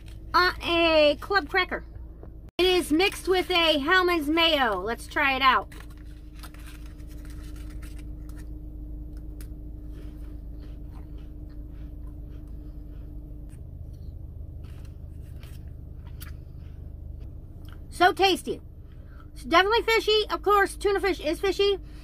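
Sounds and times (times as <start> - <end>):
steady low hum: 0.0 - 22.0
paper cup crinkling: 4.6 - 10.3
person chewing cracker: 9.1 - 17.9.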